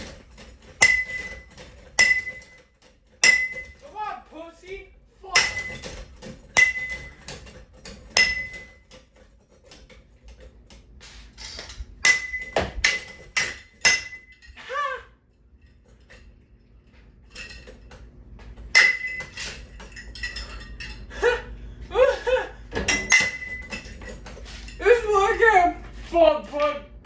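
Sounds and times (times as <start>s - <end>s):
metallic strikes on a ceiling fan: 0.7s - 3.8s, 5.3s - 9.1s, 12.0s - 14.4s.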